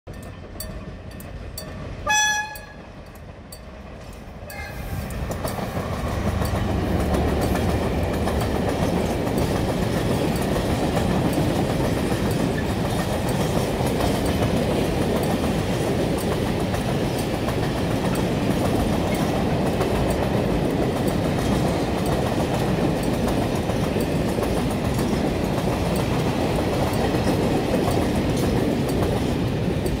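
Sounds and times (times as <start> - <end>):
train wheels rumbling on rails: 0.1 - 30.0
locomotive horn blast: 2.0 - 3.0, 4.4 - 5.1.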